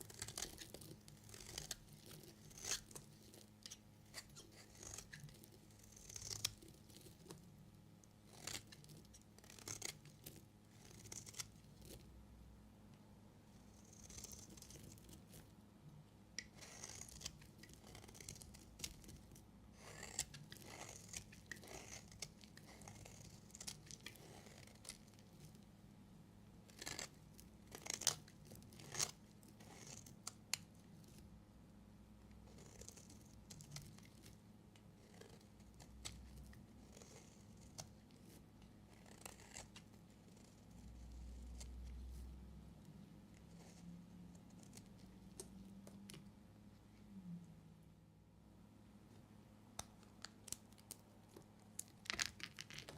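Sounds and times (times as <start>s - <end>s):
knife cutting soap: 0.0s - 12.1s, 13.6s - 15.5s, 16.3s - 25.6s, 26.6s - 31.3s, 32.4s - 42.2s.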